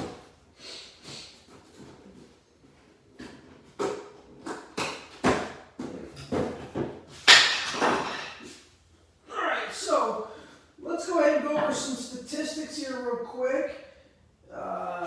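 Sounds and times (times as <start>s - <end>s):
knocks and clunks of handling: 3.1s - 8.5s.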